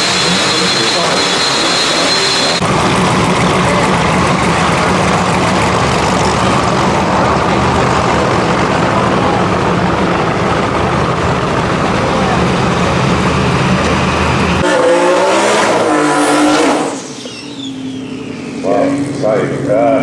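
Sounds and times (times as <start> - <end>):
drag car engine idling: 0.0 - 14.6.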